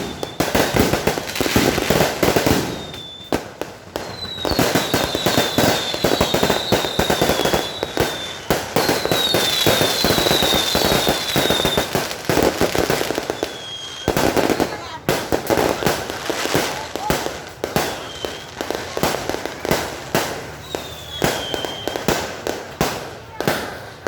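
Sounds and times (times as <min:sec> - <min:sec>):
firework whistles falling in pitch: 0:00.0 - 0:14.7, 0:17.8 - 0:18.7, 0:20.6 - 0:22.3
fireworks bangs and crackles: 0:00.0 - 0:24.0.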